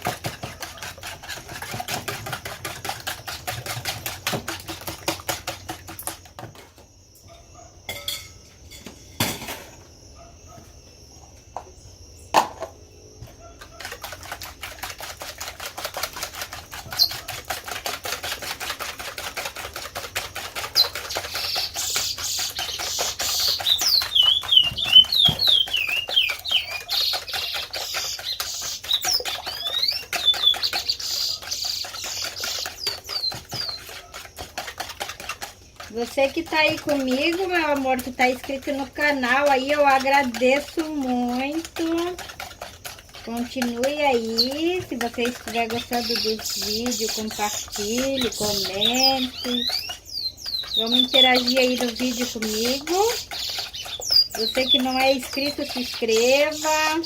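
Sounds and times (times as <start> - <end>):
whisk beating eggs in bowl: 0.0 - 6.8, 13.2 - 57.0
bird chirping: 20.7 - 33.9, 45.8 - 57.0.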